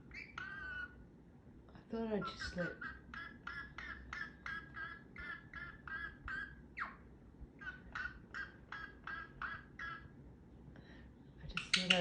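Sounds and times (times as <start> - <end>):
parrot chattering: 0.0 - 1.0, 2.2 - 10.2, 11.5 - 12.0.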